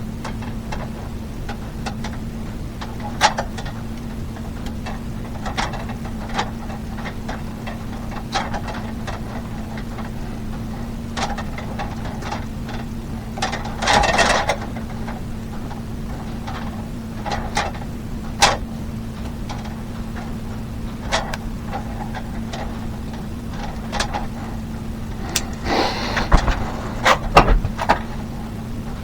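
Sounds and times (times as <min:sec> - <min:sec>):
steady low hum: 0:21.7 - 0:29.0
scraping rasp: 0:25.1 - 0:28.1
light clicks and knocks: 0:25.2 - 0:28.2.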